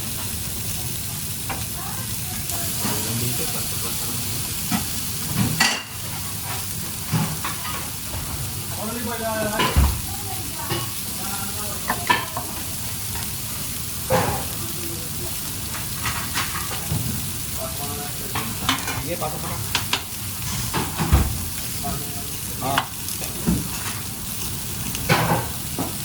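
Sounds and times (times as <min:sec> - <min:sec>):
food sizzling in a pan: 0:00.0 - 0:26.0
utensils knocking against pan: 0:04.6 - 0:08.4, 0:09.5 - 0:10.0, 0:11.8 - 0:12.7, 0:18.3 - 0:22.0, 0:25.0 - 0:26.0.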